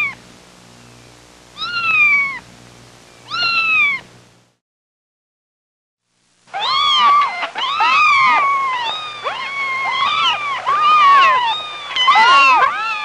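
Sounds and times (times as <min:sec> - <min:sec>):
kittens meowing: 0:00.0 - 0:00.2, 0:01.6 - 0:02.5, 0:03.3 - 0:04.1, 0:06.6 - 0:13.0.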